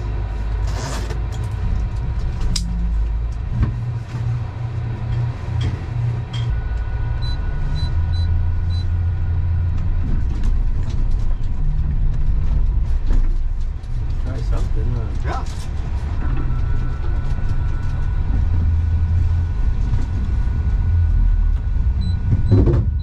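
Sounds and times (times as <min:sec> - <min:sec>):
vehicle engine rumbling: 0:00.0 - 0:23.0
short high beeps: 0:07.2 - 0:09.0.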